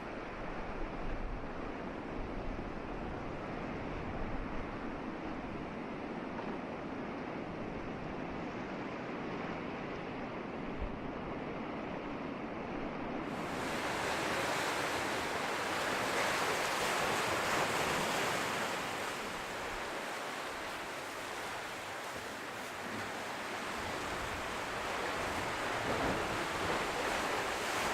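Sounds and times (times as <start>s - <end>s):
ocean waves on a beach: 0.0s - 27.9s.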